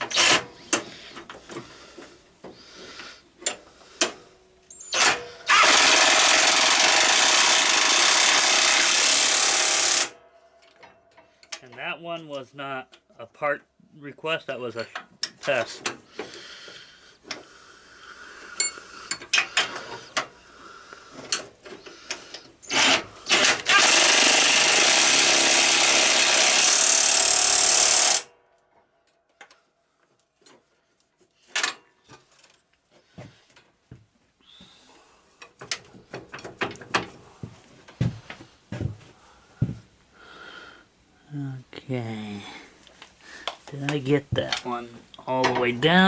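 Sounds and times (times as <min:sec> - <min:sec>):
power tool driving a bolt: 0:00.0 - 0:00.9, 0:03.4 - 0:10.8, 0:21.2 - 0:28.4
hand tools clanking: 0:18.6 - 0:20.3.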